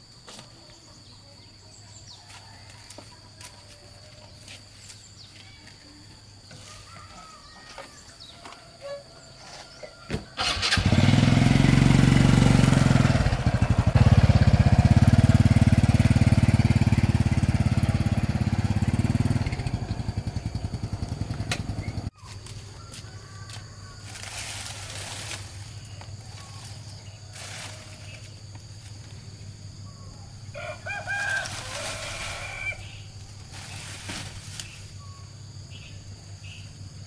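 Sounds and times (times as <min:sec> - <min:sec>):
faint outdoor background: 0:00.0 - 0:37.0
engine starting and running: 0:10.2 - 0:22.1.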